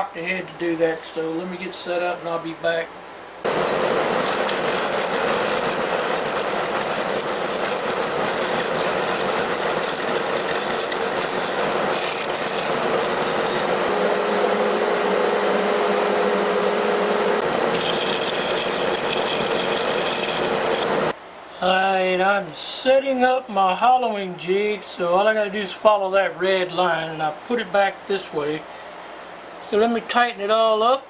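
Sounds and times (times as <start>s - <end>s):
lathe tool cutting wood: 3.5s - 21.1s
lathe hum: 3.5s - 21.2s.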